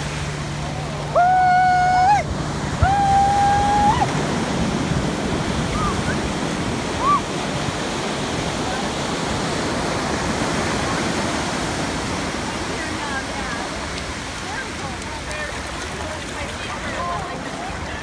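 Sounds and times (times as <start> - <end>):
ocean surf: 0.0 - 18.0
wind: 0.0 - 18.0
long high calls: 0.8 - 4.2.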